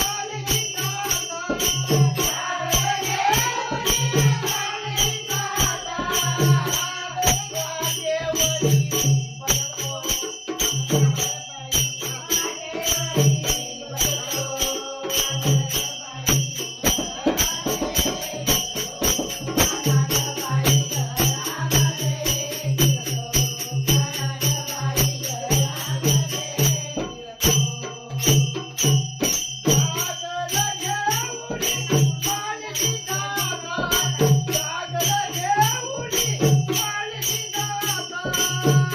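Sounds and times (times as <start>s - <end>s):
pulsing low drum beat: 0.0s - 30.0s
jingling hand percussion: 0.0s - 38.9s.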